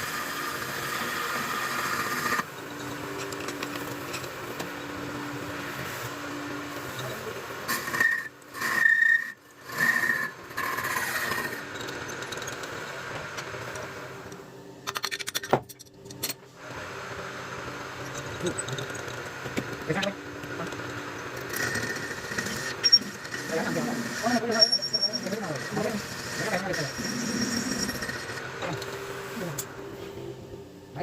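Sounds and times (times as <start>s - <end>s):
metal lathe humming: 0.0s - 14.2s, 16.6s - 30.8s
loud bursts with high squeal: 7.7s - 11.4s, 22.6s - 25.4s.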